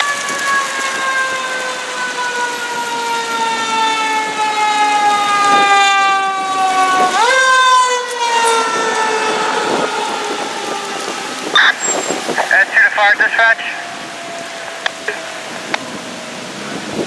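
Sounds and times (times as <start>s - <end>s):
fire truck siren wailing: 0.0s - 17.0s.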